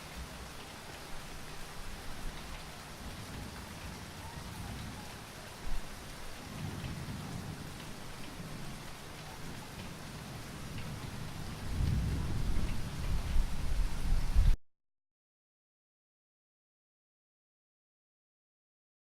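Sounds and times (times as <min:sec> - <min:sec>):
heavy rainfall: 0:00.0 - 0:14.6
distant thunder rumble: 0:06.4 - 0:14.6.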